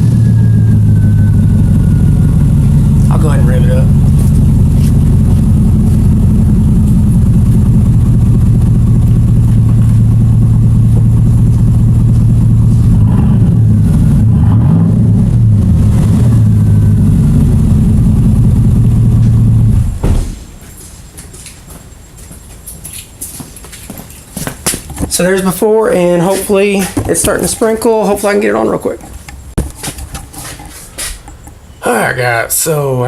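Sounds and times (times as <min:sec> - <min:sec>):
pickup engine idling and revving: 0:00.0 - 0:20.0.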